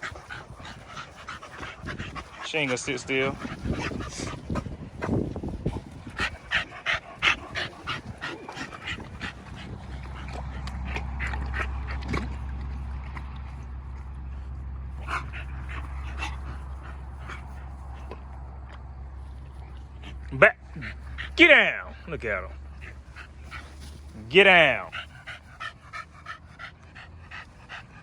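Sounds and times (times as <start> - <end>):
dogs whimpering and yipping: 0.0 - 4.7, 6.0 - 12.0, 22.8 - 28.0
steady low hum: 0.0 - 28.0.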